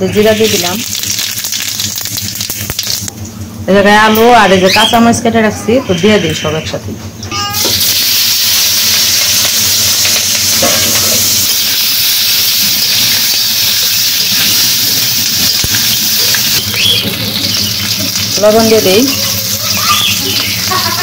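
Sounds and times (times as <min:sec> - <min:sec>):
food sizzling in hot oil: 0:00.0 - 0:03.1, 0:07.6 - 0:21.0.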